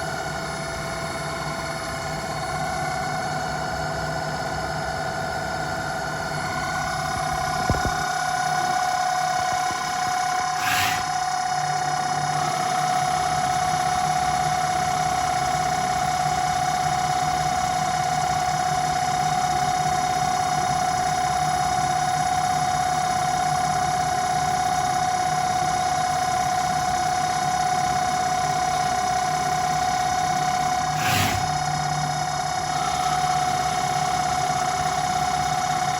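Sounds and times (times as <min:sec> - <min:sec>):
lathe motors whining: 0:00.0 - 0:14.9, 0:30.3 - 0:35.9
low hum: 0:06.1 - 0:11.6, 0:30.8 - 0:34.0.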